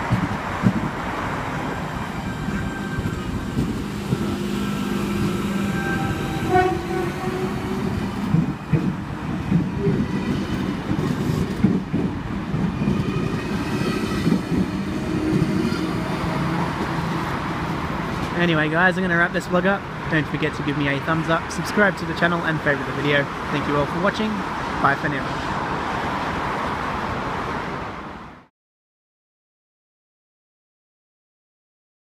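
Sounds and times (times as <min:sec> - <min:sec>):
train wheels knocking on track: 0:00.0 - 0:01.0, 0:07.7 - 0:17.1
electric train rumble and whine: 0:00.0 - 0:18.8.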